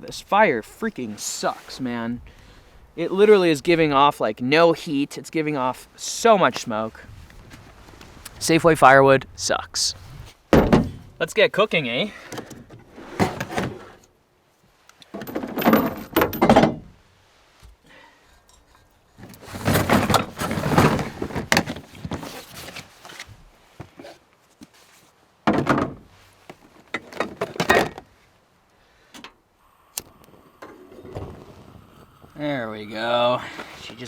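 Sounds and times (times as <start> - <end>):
thunks and clattering of gear: 10.2 - 11.2, 12.2 - 14.0, 15.0 - 16.9, 19.2 - 24.8, 25.4 - 28.2.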